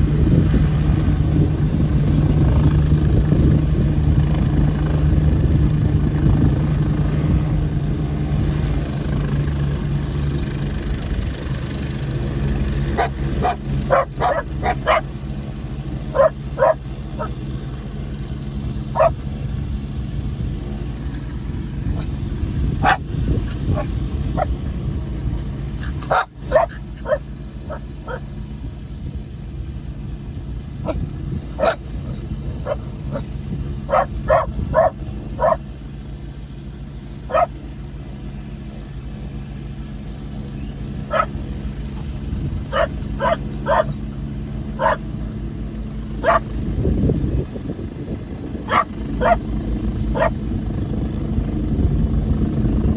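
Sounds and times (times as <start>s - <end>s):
low engine drone: 0.0s - 52.9s
dog barking: 12.9s - 15.3s, 16.0s - 17.4s, 18.9s - 19.3s, 21.9s - 22.1s, 22.8s - 23.1s, 23.7s - 24.5s, 25.8s - 28.2s, 30.8s - 31.0s, 31.6s - 33.3s, 33.9s - 35.6s, 37.3s - 37.5s, 41.1s - 41.4s, 42.7s - 44.0s, 44.8s - 45.1s, 46.2s - 46.5s, 48.7s - 49.5s, 50.1s - 50.4s.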